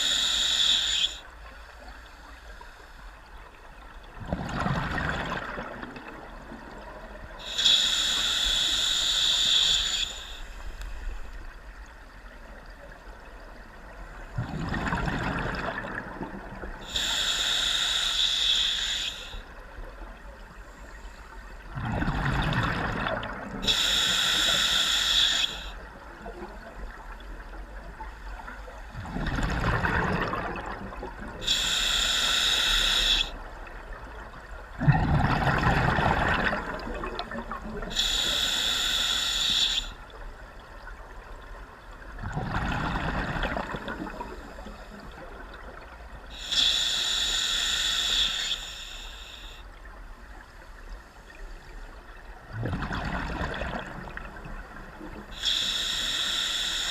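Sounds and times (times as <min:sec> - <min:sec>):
hissing inhale through regulator: 0:00.0 - 0:03.5, 0:07.4 - 0:11.5, 0:16.8 - 0:19.6, 0:23.0 - 0:25.9, 0:31.4 - 0:33.4, 0:36.5 - 0:40.1, 0:42.8 - 0:49.8, 0:55.3 - 0:56.9
exhaled bubbles rushing: 0:04.2 - 0:06.2, 0:14.4 - 0:16.7, 0:21.8 - 0:23.6, 0:29.0 - 0:31.3, 0:34.8 - 0:37.9, 0:42.2 - 0:44.3, 0:52.5 - 0:54.5.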